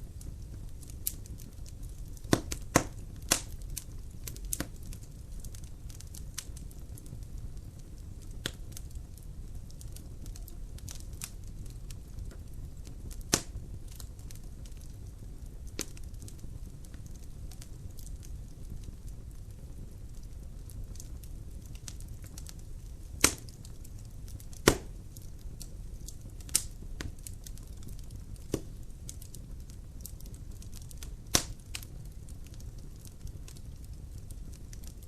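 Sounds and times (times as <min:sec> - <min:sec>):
fire crackling: 0:00.0 - 0:35.0
fire rumbling: 0:00.0 - 0:35.0
logs popping sharply: 0:24.6 - 0:24.9.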